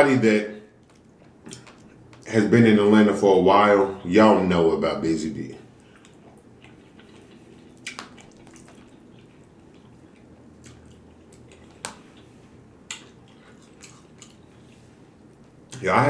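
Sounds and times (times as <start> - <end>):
quiet chewing: 0.7 - 2.3, 5.6 - 15.8
wet mouth clicks: 0.9 - 2.3, 5.8 - 12.3, 12.9 - 14.5.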